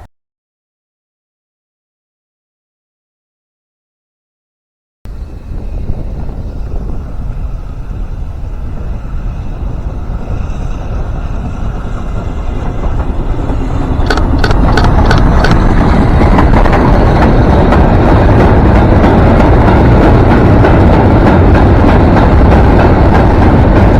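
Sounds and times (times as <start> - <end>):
train rumbling: 5.1 - 23.9
sharp clicks: 14.0 - 15.7.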